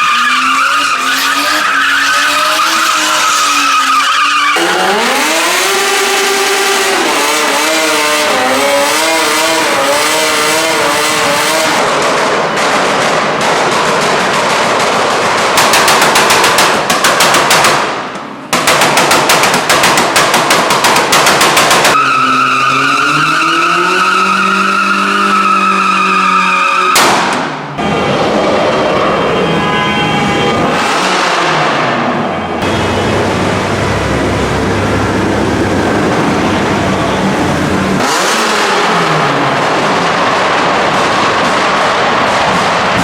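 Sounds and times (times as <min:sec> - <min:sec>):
tyres squealing: 0:00.0 - 0:05.3
car engine revving: 0:00.0 - 0:16.7, 0:30.5 - 0:43.0.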